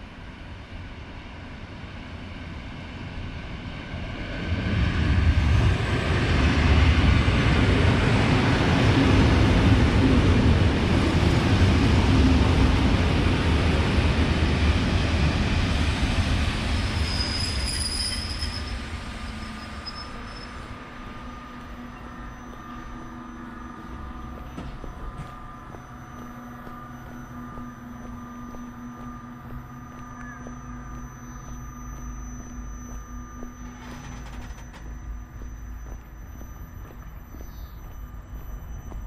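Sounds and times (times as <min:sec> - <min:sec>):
train pulling into station: 0:00.0 - 0:39.0
brake squeal: 0:16.4 - 0:39.0.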